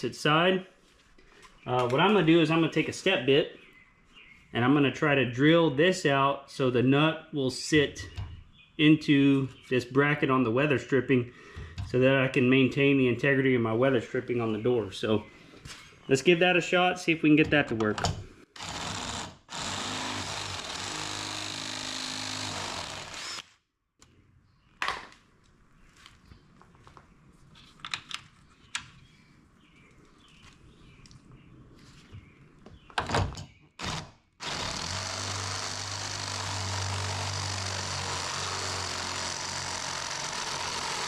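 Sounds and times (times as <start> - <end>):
power drill drilling: 18.6 - 23.5, 33.8 - 41.0.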